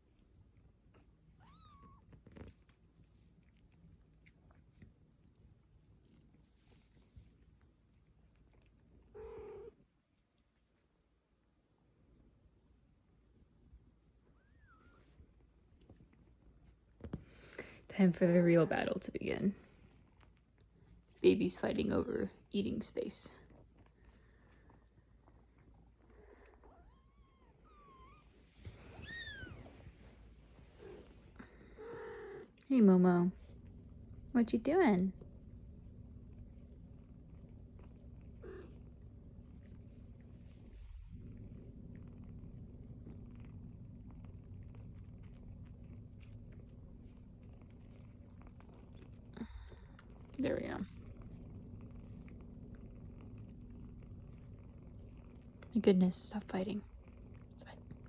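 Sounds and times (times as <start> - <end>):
small clicks and rustles: 0.0 - 17.6, 19.6 - 21.2, 35.0 - 55.7.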